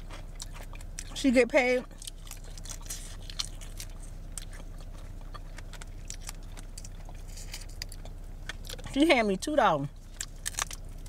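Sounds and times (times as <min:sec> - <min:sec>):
steady low hum: 0:00.0 - 0:11.0
wet mouth chewing clicks: 0:01.9 - 0:08.9.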